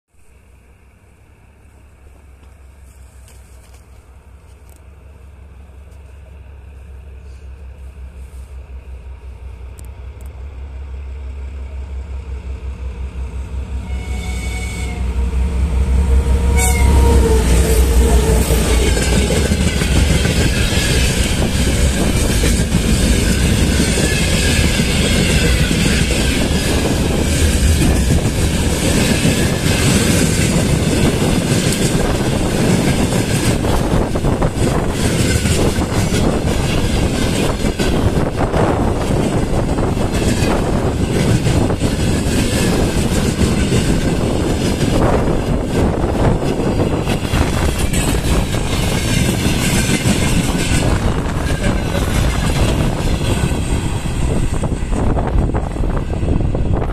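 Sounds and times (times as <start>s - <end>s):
diesel locomotive engine rumble: 0.1s - 56.9s
locomotive horn: 13.7s - 19.5s
train wheels clattering: 16.7s - 55.8s.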